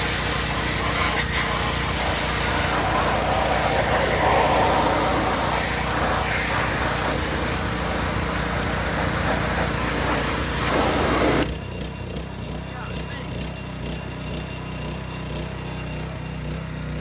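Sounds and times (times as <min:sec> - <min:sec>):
water jet spraying: 0:00.0 - 0:11.4
pressure washer engine humming: 0:00.0 - 0:17.0.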